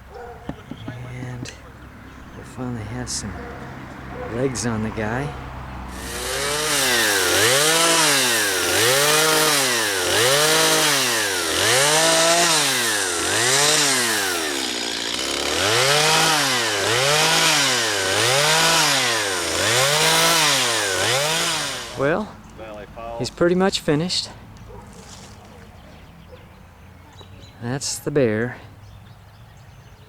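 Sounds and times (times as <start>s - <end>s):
chainsaw revving: 5.8s - 22.8s.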